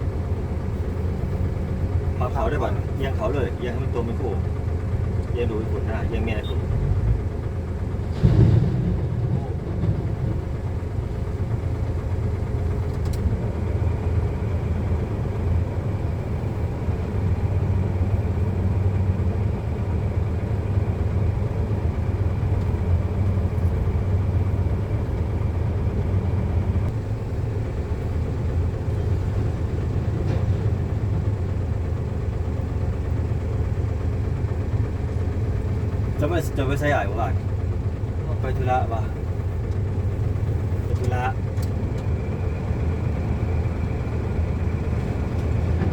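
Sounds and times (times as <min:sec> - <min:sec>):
diesel engine rumbling: 0:00.0 - 0:45.9
loud thud: 0:08.0 - 0:10.5.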